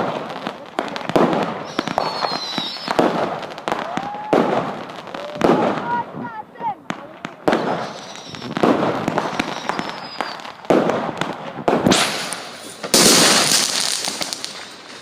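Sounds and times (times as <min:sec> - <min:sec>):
fireworks bursting and crackling: 0:00.0 - 0:15.0
bright hissing crackle: 0:01.5 - 0:04.3, 0:07.5 - 0:10.6.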